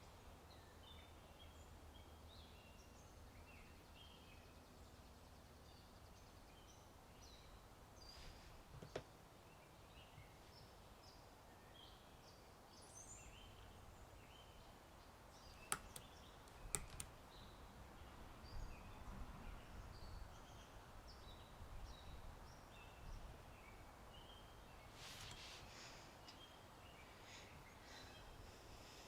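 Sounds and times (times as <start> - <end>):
faint birdsong chirps: 0.0 - 29.0
sharp clicks: 15.6 - 17.1.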